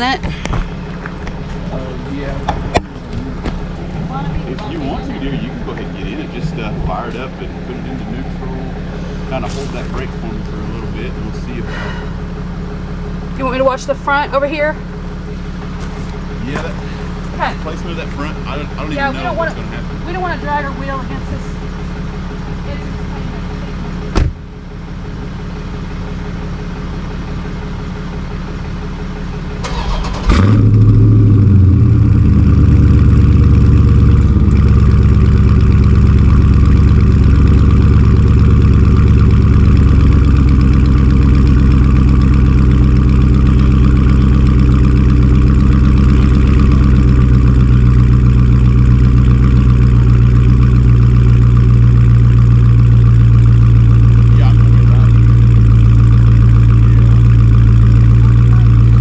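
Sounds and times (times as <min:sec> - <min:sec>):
car engine starting and idling: 0:00.0 - 0:59.0
quiet engine hum: 0:00.0 - 0:59.0.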